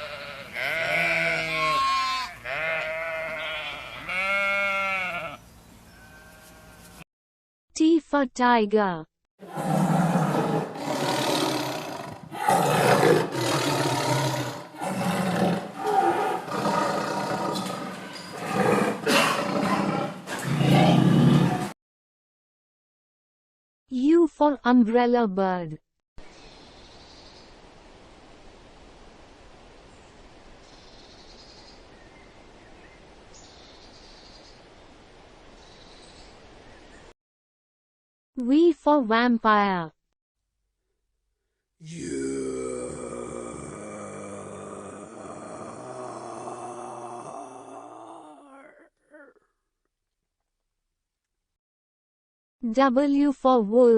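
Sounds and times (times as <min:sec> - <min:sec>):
tiger roaring: 0:09.4 - 0:21.7, 0:41.8 - 0:49.2.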